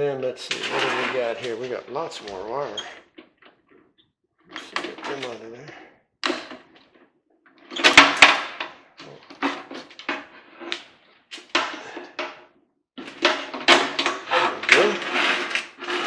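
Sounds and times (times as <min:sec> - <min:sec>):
wires being pulled out: 0:00.5 - 0:03.2, 0:13.2 - 0:16.0.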